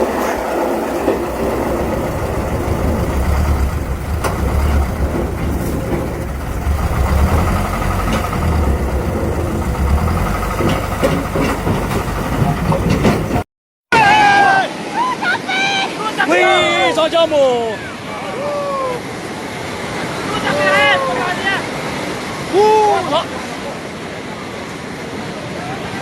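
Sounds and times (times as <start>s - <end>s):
sharp knocks: 0.0s - 13.4s
diesel engine rumbling: 0.0s - 13.5s.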